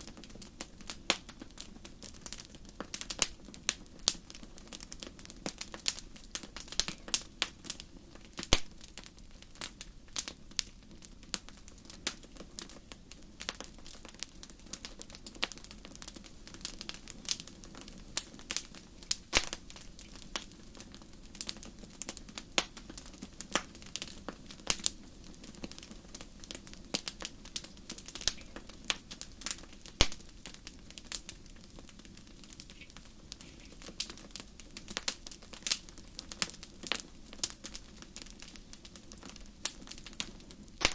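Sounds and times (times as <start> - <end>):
campfire snaps and pops: 0.0 - 40.9
low hum of burning fire: 0.0 - 40.9.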